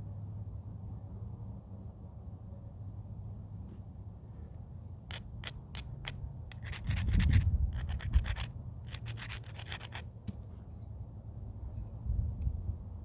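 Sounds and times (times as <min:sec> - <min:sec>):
sharp stone clicks: 0:05.1 - 0:10.4
stone scraping flint edge: 0:05.1 - 0:10.5.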